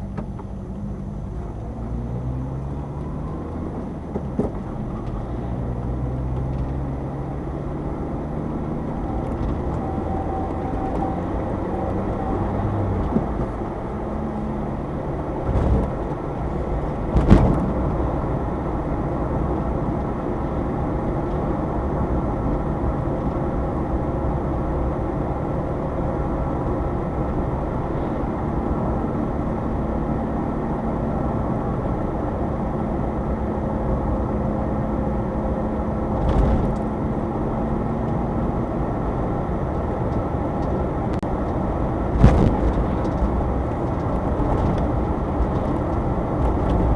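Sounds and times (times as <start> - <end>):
van engine and road noise: 0.0 - 46.9
knocks from road bumps: 17.1 - 17.8, 42.2 - 43.2.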